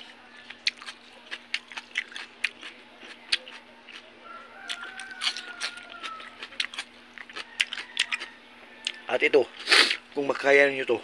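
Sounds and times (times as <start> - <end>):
chewing crunchy raw vegetables: 0.0 - 10.0
faint rooster crowing: 4.2 - 9.5.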